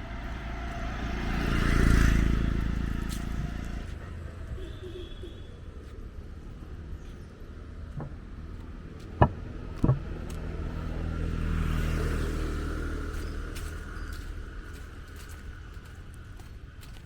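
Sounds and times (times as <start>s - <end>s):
motor vehicle passing by: 0.0s - 4.4s, 5.8s - 16.6s
sharp knocks: 8.0s - 8.2s, 9.0s - 10.2s.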